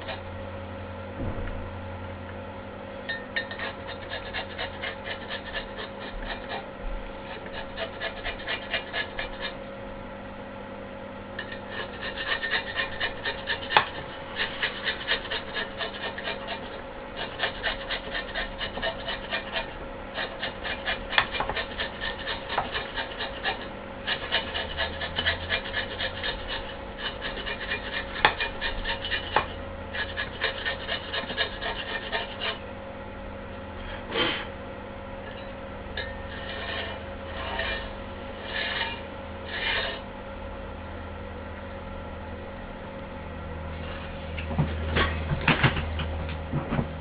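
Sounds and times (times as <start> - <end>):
rasping scraping strokes: 3.4 - 9.6, 11.4 - 32.6, 35.3 - 40.1.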